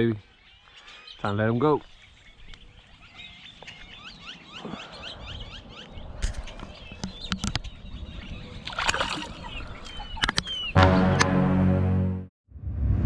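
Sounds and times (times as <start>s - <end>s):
bird chirping: 0.0s - 8.6s, 9.3s - 10.8s.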